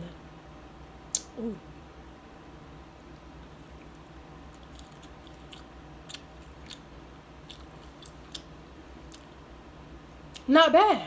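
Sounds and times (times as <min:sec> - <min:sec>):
faint low hum: 0:00.0 - 0:11.0
person chewing: 0:03.3 - 0:09.4.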